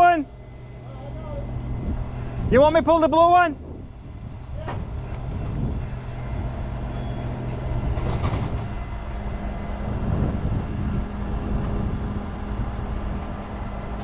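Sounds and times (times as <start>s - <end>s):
tow truck engine running: 0.0s - 14.0s.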